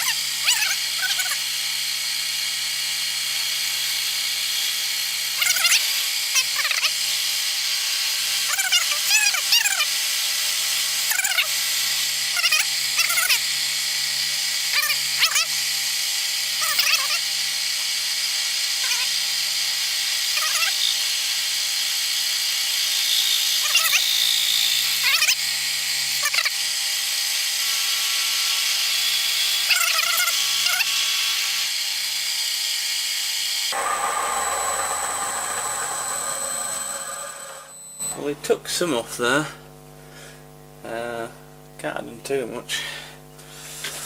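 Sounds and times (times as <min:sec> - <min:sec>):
cutter squealing on steel: 0:00.0 - 0:10.0, 0:10.7 - 0:11.7, 0:12.3 - 0:13.6, 0:14.6 - 0:15.7, 0:16.4 - 0:17.8, 0:18.5 - 0:22.2, 0:22.8 - 0:26.7, 0:28.4 - 0:32.3, 0:33.4 - 0:38.3
milling machine running: 0:33.7 - 0:38.2.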